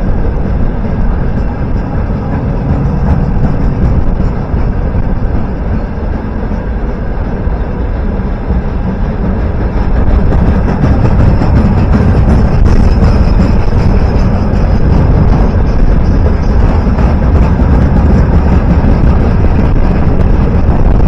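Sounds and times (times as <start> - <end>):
train rumbling past: 0.0 - 21.0.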